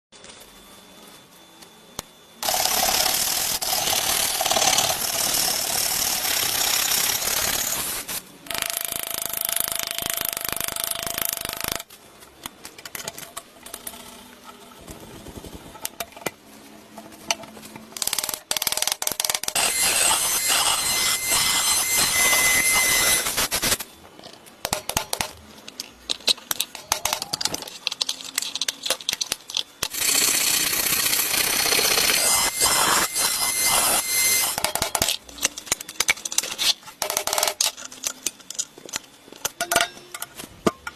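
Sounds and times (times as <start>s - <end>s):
high whine of tool: 0.2s - 8.2s, 19.1s - 23.9s, 29.8s - 36.2s.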